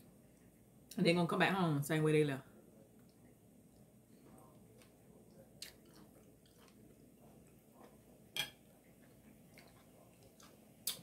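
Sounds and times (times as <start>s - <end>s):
chewing food: 3.0s - 11.0s
metal fork set on plate: 8.4s - 8.6s.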